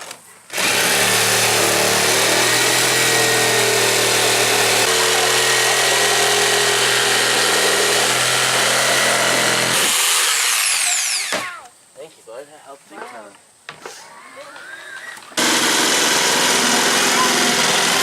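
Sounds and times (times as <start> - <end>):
power tool motor running: 0.5 - 11.4, 15.4 - 18.0.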